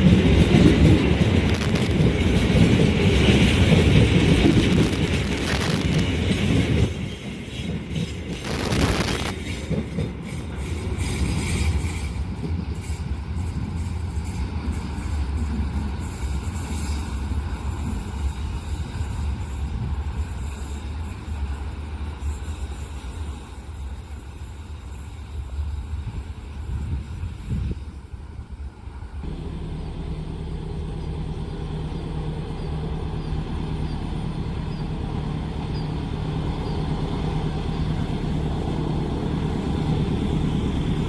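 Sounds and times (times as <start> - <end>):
low rumble of passing vehicles: 29.2 - 41.0.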